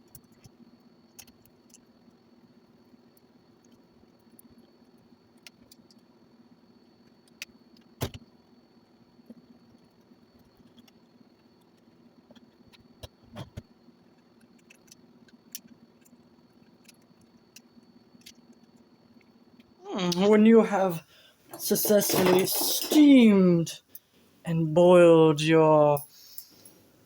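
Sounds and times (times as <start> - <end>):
small objects clicking and knocking: 9.2 - 19.7.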